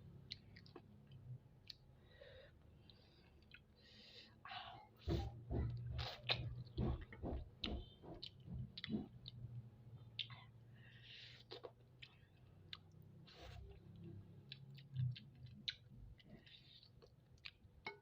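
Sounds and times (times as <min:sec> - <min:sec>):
soft mouth sounds: 0:04.7 - 0:07.1, 0:07.7 - 0:17.6.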